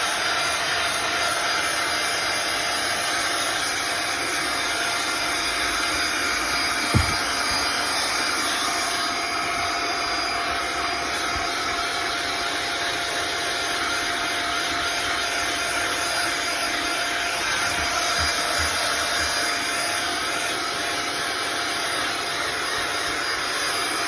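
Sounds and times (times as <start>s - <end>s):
handheld vacuum cleaner whine: 0.0s - 24.0s
nozzle knocking on surface: 6.8s - 7.7s.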